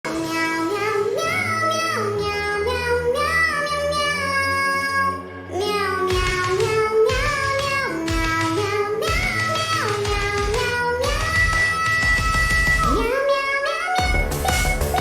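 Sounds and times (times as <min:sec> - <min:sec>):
backing track with bass: 0:00.0 - 0:15.0
high childlike voice singing: 0:00.1 - 0:15.0.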